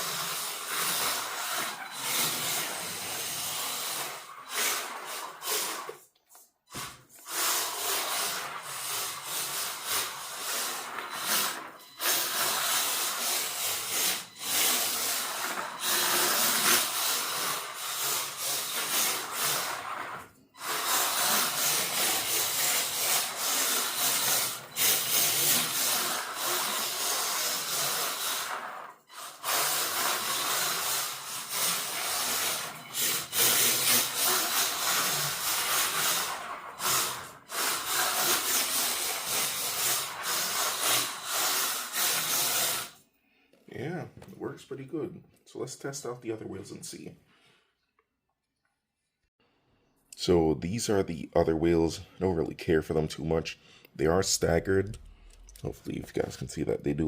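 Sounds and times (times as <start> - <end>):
toy car motor and gears: 0.0 - 43.0
toy car tyres sliding: 0.0 - 43.1.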